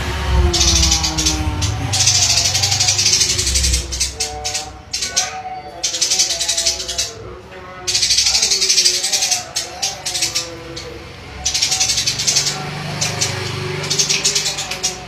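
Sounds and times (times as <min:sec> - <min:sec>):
low hum: 0:00.0 - 0:05.2
lower wavering tones: 0:00.0 - 0:05.7.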